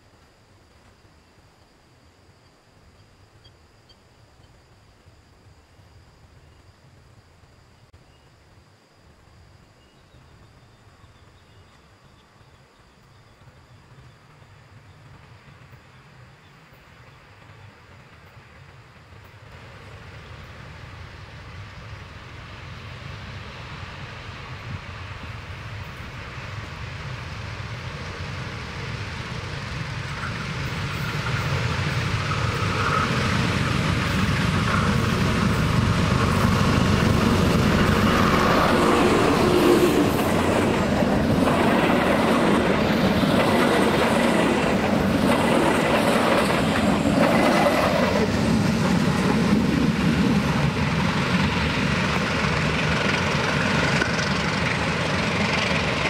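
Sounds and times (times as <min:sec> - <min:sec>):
diesel train rumbling past: 0:09.8 - 0:56.0
wheels clacking over rail joints: 0:30.0 - 0:56.0.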